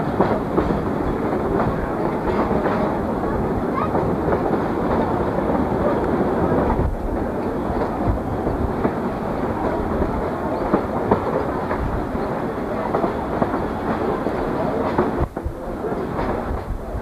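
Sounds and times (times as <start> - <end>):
wheels rumbling on rails: 0.0 - 17.0.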